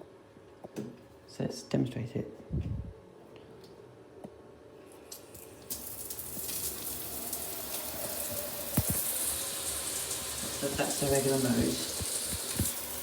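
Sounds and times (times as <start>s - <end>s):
shower water spraying: 5.1s - 13.0s.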